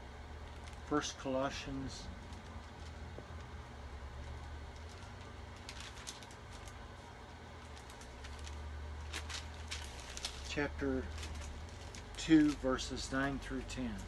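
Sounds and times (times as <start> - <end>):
thin pages being turned: 4.7 - 7.0, 7.6 - 14.0.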